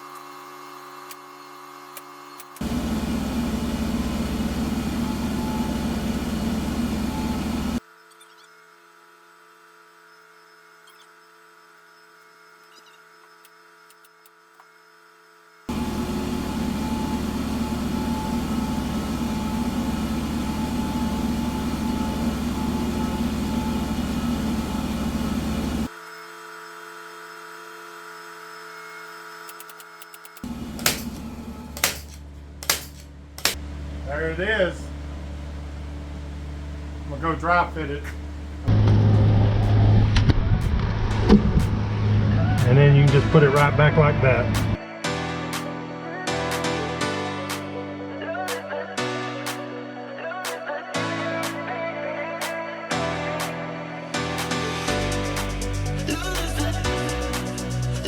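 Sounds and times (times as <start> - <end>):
electric power tool running: 0.0 - 44.8
motor-driven machine throbbing: 0.3 - 44.8, 54.7 - 58.0.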